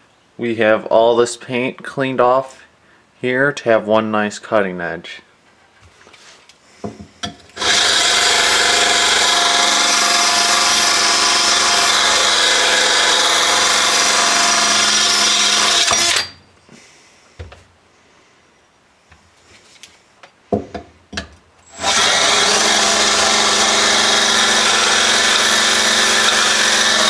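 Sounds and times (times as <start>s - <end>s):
electric drill grinding steel blade: 7.5s - 16.4s, 21.6s - 27.0s.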